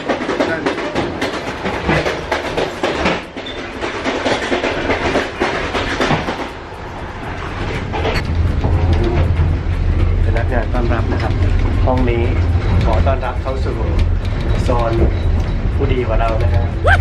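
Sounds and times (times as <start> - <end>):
train wheel clatter and knocks: 0.0 - 16.8
train running roar: 0.0 - 17.0
low rumble: 6.6 - 17.0.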